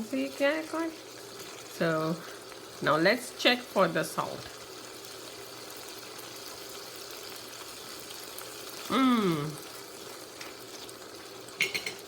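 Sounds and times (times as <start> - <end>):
curry sizzling in a pan: 0.0 - 12.0
person's falling vocal sound: 8.9 - 9.6.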